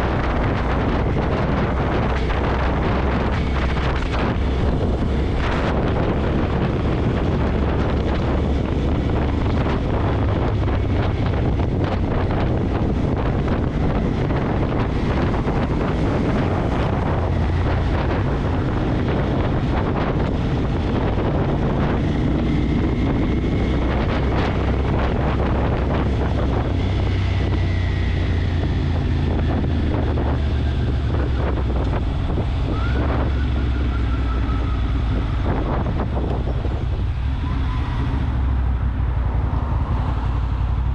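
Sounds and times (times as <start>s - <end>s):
motorcycle running: 0.0s - 40.9s
wind buffeting microphone: 0.0s - 40.9s
faint whistling tones: 32.7s - 35.1s.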